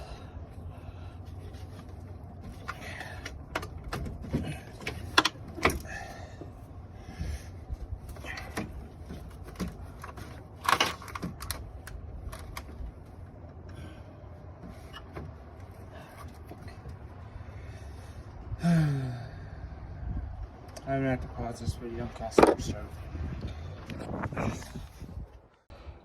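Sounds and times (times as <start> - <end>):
person groaning: 18.6 - 19.5.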